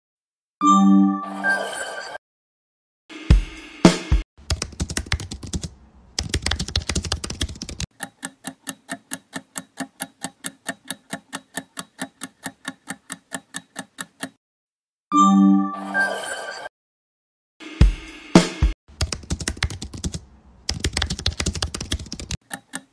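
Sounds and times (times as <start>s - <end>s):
keyboard typing clicks: 4.5s - 14.4s, 19.0s - 22.9s
clock ticking: 7.5s - 14.4s, 22.4s - 22.9s.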